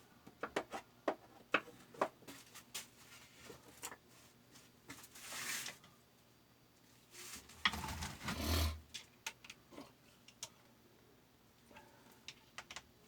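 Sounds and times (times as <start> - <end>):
rasping scrape: 7.7 - 8.8
small parts clicking and tapping: 12.2 - 12.9.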